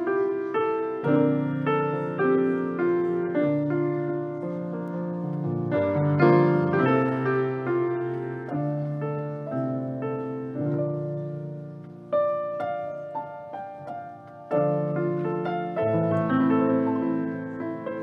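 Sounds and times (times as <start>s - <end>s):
soft slow piano chords: 0.0s - 18.0s.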